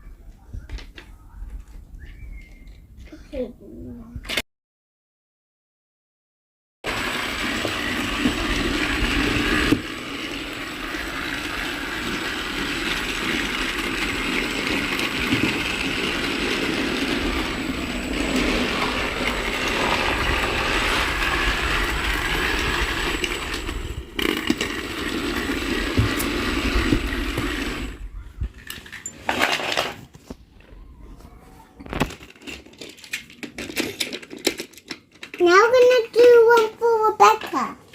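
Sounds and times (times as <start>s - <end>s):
toy train motor whirring: 6.9s - 29.9s, 32.0s - 37.7s
toy train wheels rattling: 6.9s - 30.0s, 32.1s - 37.8s.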